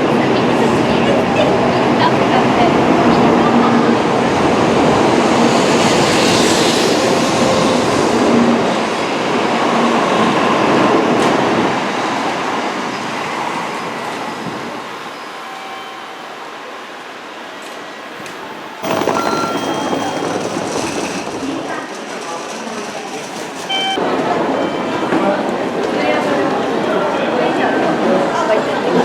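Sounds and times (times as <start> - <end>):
train rushing rail noise: 0.0 - 29.0
train wheels clattering: 18.2 - 23.7.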